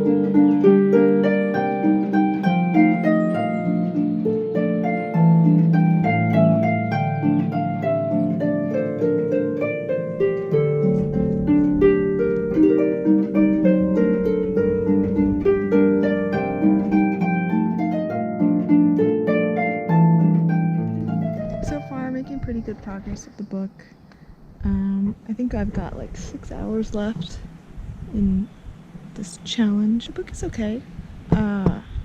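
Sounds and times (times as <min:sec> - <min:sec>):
solo harp music: 0:00.0 - 0:23.2.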